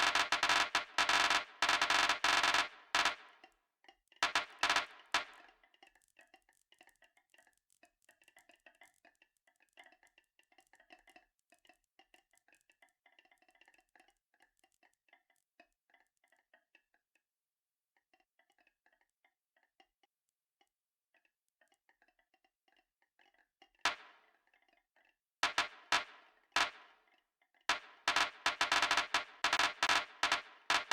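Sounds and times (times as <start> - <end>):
marbles rolling on track: 0.0 - 3.4, 4.2 - 5.5, 27.7 - 30.9.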